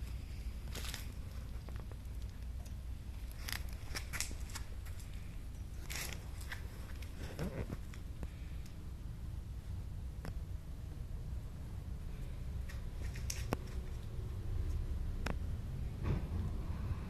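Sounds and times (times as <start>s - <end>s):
puppy claws clicking and rustling: 12.7s - 14.1s.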